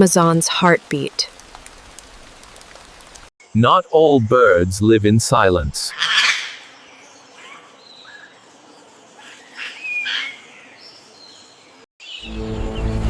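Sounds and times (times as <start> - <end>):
bird chirps: 9.4 - 13.0
whistled bird note: 12.0 - 13.0.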